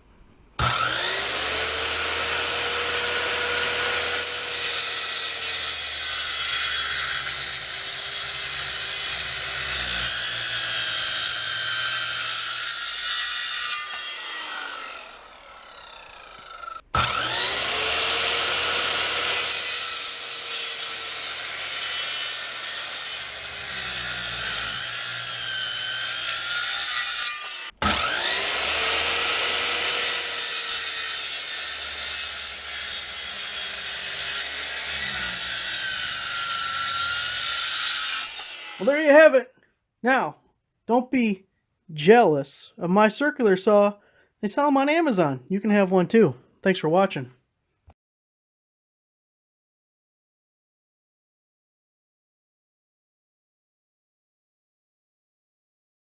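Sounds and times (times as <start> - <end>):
circular saw cutting wood: 0.6 - 39.3.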